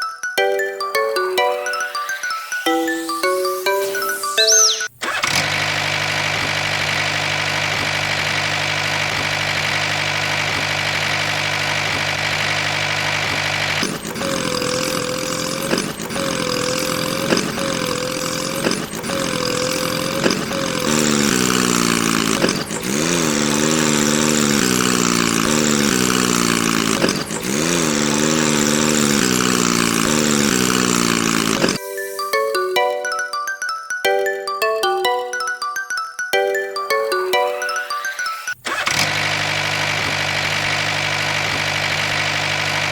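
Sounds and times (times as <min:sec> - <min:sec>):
small tractor engine running: 0:02.8 - 0:31.8, 0:37.3 - 0:42.9.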